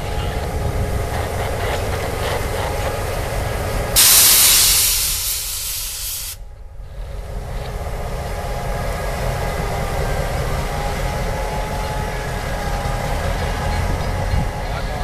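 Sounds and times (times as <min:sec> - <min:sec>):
freight train rumbling past: 0:00.0 - 0:15.0
compressed air hissing: 0:04.0 - 0:06.4.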